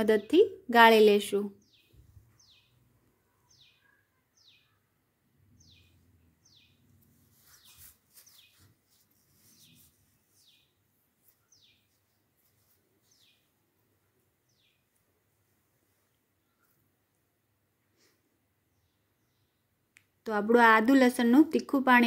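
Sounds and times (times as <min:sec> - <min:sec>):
bird chirping: 0:01.5 - 0:15.2.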